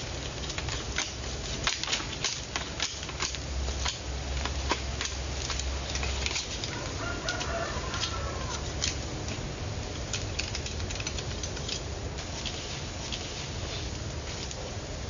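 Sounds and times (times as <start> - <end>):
sharp crackles and clicks: 0.0 - 15.0
wavering animal call: 6.7 - 8.7.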